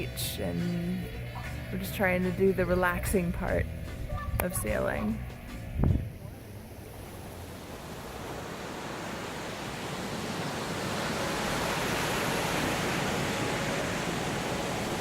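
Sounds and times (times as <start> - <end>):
waves washing onto beach: 6.2 - 15.0.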